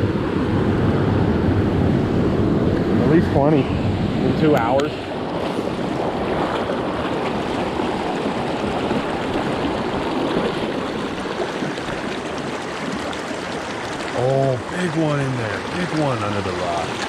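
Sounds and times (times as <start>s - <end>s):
wind on microphone: 0.0s - 17.0s
creek water rushing over rocks: 4.4s - 17.0s.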